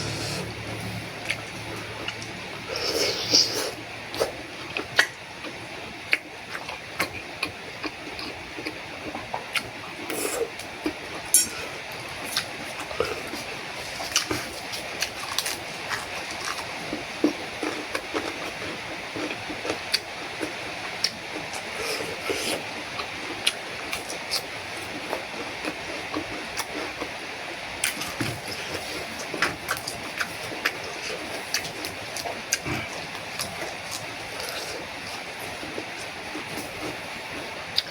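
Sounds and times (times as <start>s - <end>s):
chewing: 1.1s - 27.2s, 27.8s - 37.9s.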